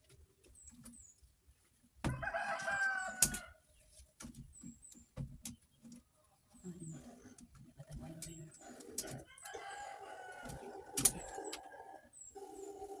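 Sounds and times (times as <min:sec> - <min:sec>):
small birds chirping: 0:00.0 - 0:02.0, 0:02.6 - 0:13.0
rooster crowing: 0:02.1 - 0:03.6, 0:09.1 - 0:13.0.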